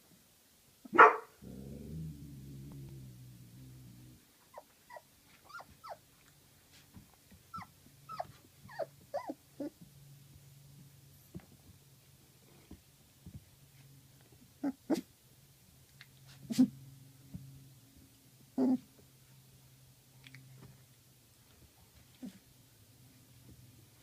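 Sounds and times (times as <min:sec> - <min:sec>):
puppy growling: 0:01.4 - 0:06.0, 0:07.5 - 0:09.8, 0:14.6 - 0:15.1, 0:18.6 - 0:18.9
puppy crying: 0:04.5 - 0:06.0, 0:07.5 - 0:09.8
puppy whimpers and squeaks: 0:04.5 - 0:06.0, 0:07.5 - 0:09.8.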